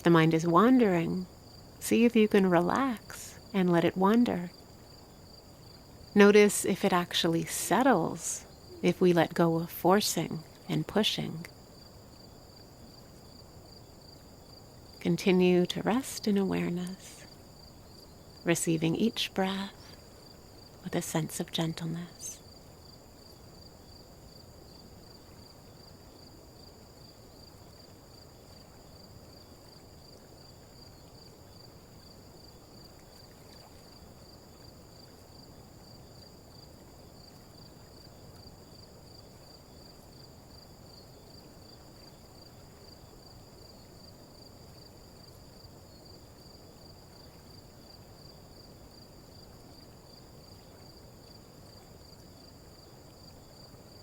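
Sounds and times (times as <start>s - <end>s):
faint crickets chirping: 0.0s - 54.0s
low steady background noise: 0.0s - 54.0s.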